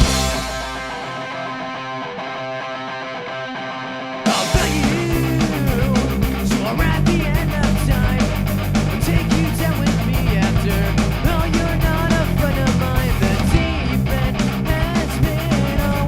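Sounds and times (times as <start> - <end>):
rock band playing live: 0.0 - 16.0.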